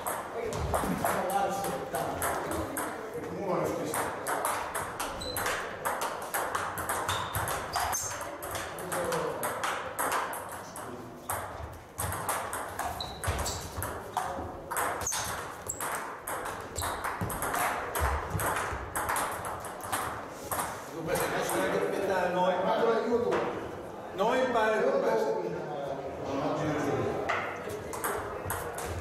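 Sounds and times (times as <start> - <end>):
table tennis balls clicking: 0.0 - 3.1, 3.8 - 21.9, 27.4 - 29.0
shoes squeaking on wooden floor: 5.0 - 5.7, 7.0 - 8.4, 12.8 - 18.4.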